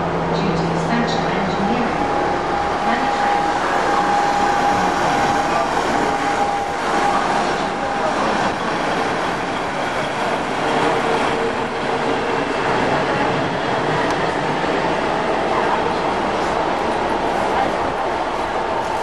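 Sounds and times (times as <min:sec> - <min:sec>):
train rumbling past: 0:00.0 - 0:19.0.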